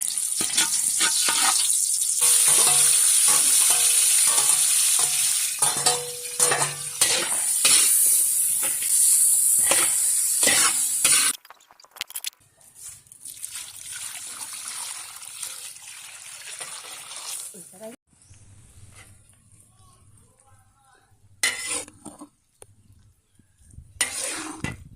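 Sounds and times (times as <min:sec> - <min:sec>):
noodles sizzling in a pan: 0:00.0 - 0:11.3
spatula scraping a pan: 0:00.4 - 0:11.3, 0:21.4 - 0:22.3, 0:24.0 - 0:24.9.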